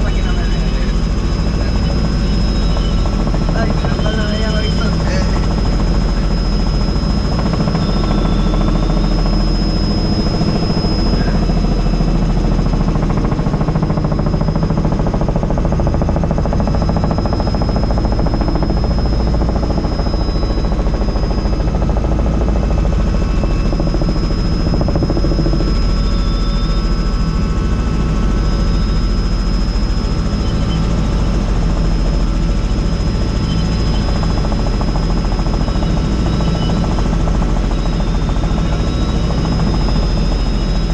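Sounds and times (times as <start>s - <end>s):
helicopter rotor and engine drone: 0.0s - 40.9s
high whine: 0.0s - 40.9s.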